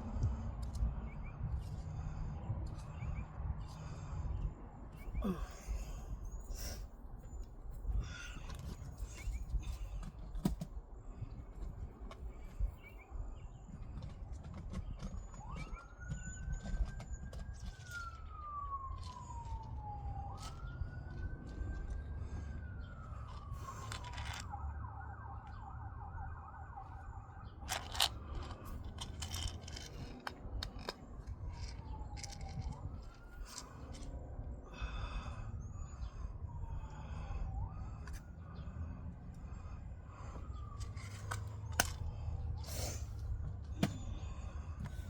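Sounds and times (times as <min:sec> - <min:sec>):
emergency vehicle siren wailing: 0:05.1 - 0:06.2, 0:15.1 - 0:45.0.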